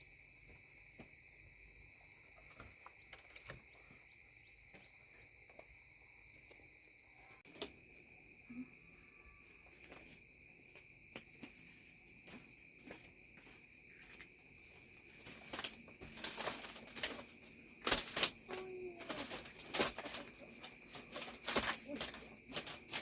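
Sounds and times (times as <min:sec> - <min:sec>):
high insect drone: 0:00.0 - 0:23.0
loud irregular rustling: 0:14.5 - 0:23.0.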